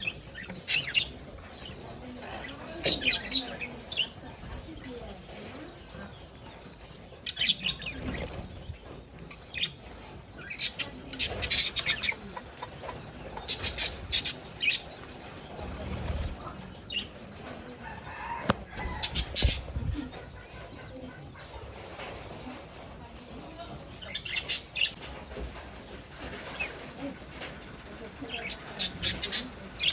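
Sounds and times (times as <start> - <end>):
budgerigars chirping: 0.0 - 15.1, 18.1 - 21.0
wings fluttering: 7.6 - 29.9.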